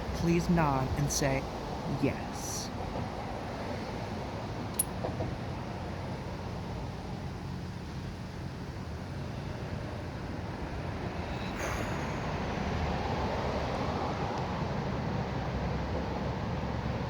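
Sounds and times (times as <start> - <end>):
road traffic rumble: 0.0 - 17.0
vehicle approaching: 0.0 - 17.0.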